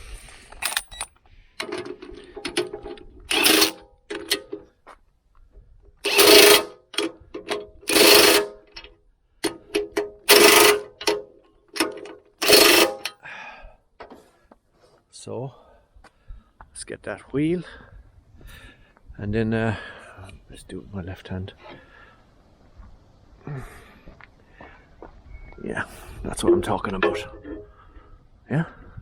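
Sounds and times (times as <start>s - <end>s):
handling clicks and taps: 0.6s - 4.6s, 6.2s - 13.2s, 26.5s - 27.6s
impact gun bursts: 3.3s - 3.8s, 6.0s - 6.8s, 7.9s - 8.6s, 10.2s - 11.2s, 11.8s - 13.1s.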